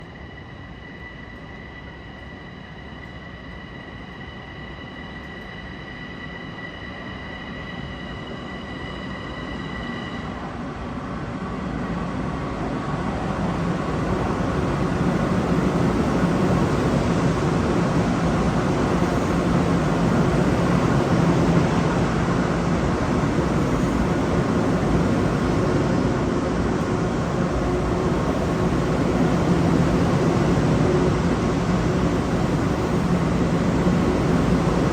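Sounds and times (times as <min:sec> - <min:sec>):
high-pitched whine: 0:00.0 - 0:10.8
electric train rumble: 0:00.0 - 0:34.9.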